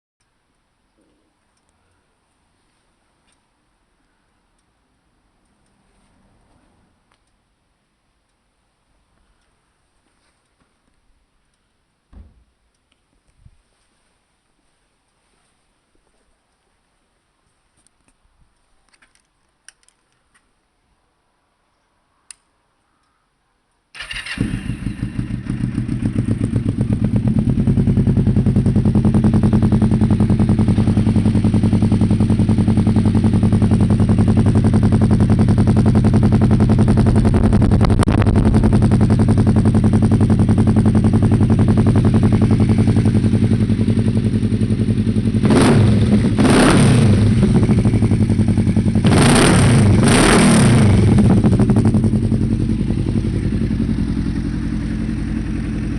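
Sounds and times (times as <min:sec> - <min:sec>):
motorcycle engine idling: 0:24.0 - 0:55.9
motorcycle throttle revving: 0:24.0 - 0:55.9.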